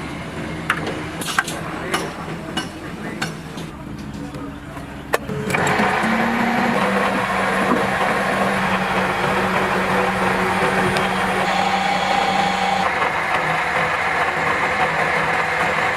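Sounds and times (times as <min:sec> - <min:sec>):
electric motor humming: 0:05.3 - 0:12.9.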